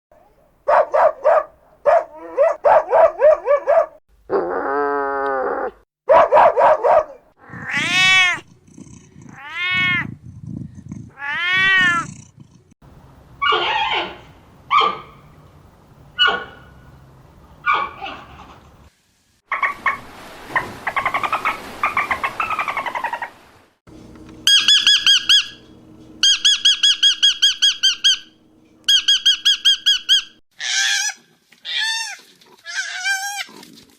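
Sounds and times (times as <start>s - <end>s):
cat meowing: 7.4s - 8.5s, 9.2s - 10.1s, 11.1s - 12.2s.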